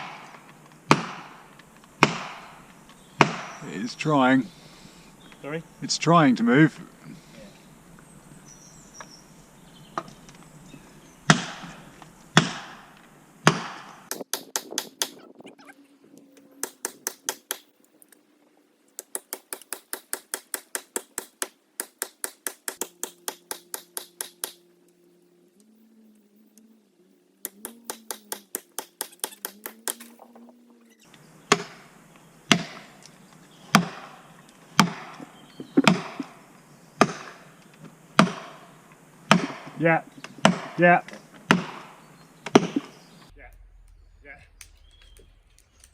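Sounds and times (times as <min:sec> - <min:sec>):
hammer striking wedge: 0:00.9 - 0:01.4, 0:02.0 - 0:02.5, 0:03.2 - 0:03.6, 0:12.4 - 0:12.8, 0:13.4 - 0:15.1, 0:19.2 - 0:24.6, 0:27.5 - 0:30.0, 0:31.5 - 0:31.8, 0:33.8 - 0:34.2, 0:34.8 - 0:36.3, 0:37.0 - 0:37.4, 0:38.2 - 0:38.6, 0:39.3 - 0:39.8, 0:40.4 - 0:40.8, 0:41.5 - 0:41.9.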